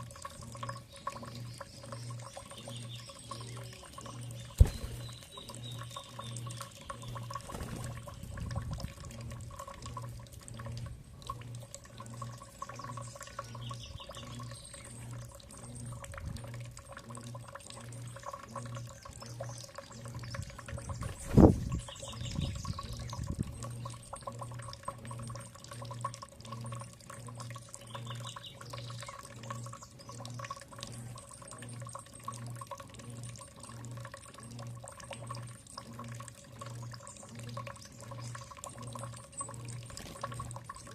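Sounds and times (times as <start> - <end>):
low pulsing hum: 0.0 - 40.9
water running and splashing: 0.0 - 40.9
faint bird trills: 0.4 - 8.3.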